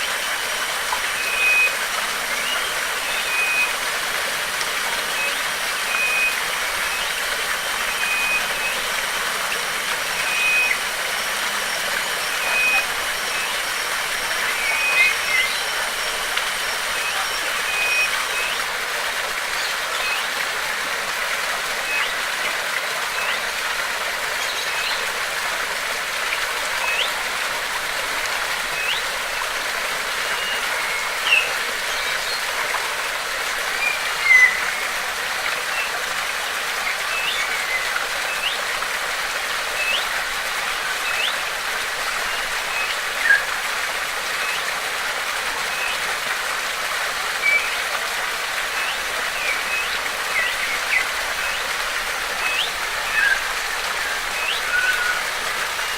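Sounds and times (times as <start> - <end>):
flowing water: 0.0 - 55.9
bird chirps: 33.8 - 35.0.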